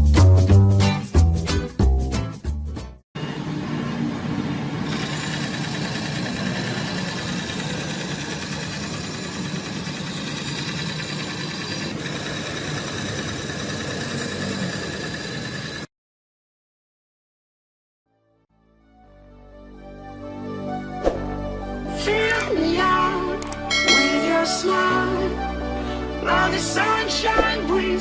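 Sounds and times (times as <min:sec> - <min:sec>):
band saw running: 0:04.2 - 0:15.9, 0:23.7 - 0:25.2.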